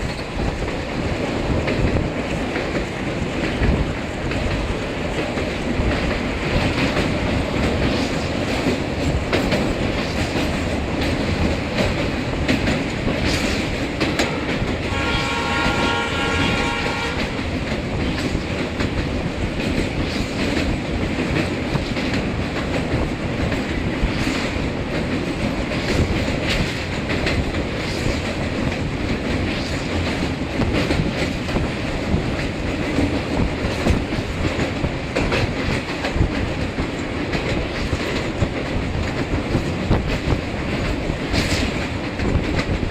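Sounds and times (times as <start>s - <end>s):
train rumbling on track: 0.0s - 42.9s
train horn: 14.2s - 17.5s.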